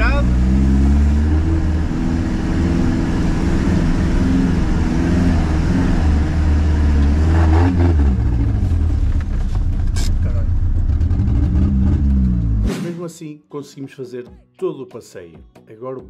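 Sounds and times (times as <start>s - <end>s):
diesel engine revving: 0.0s - 12.7s.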